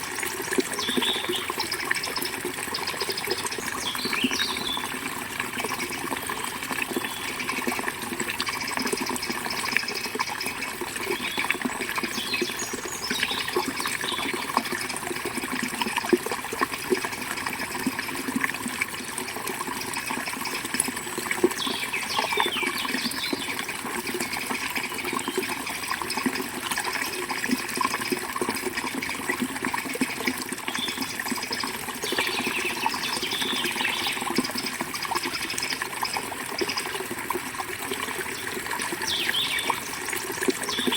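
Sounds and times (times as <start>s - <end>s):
river water flowing: 0.0s - 40.9s
birds chirping: 0.8s - 4.9s, 38.4s - 39.9s.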